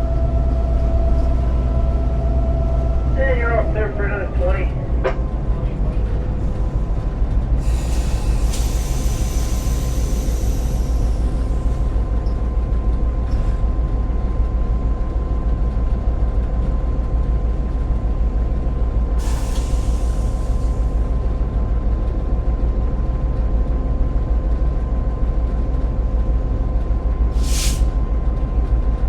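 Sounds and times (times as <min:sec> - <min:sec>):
short hiss: 0:27.4 - 0:27.9.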